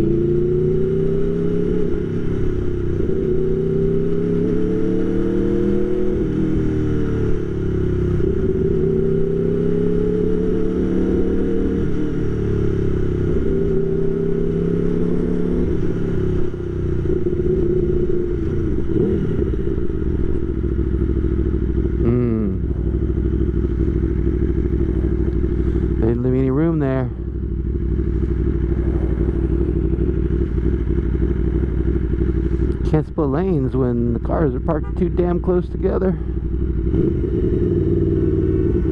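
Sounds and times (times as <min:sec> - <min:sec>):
motorcycle engine at low revs: 0:00.0 - 0:38.9.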